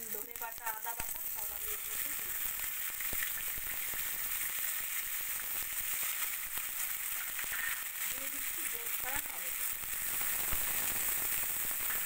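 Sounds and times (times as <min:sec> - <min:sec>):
oil spattering crackles: 0:00.0 - 0:12.0
paste frying in hot oil: 0:00.0 - 0:12.0.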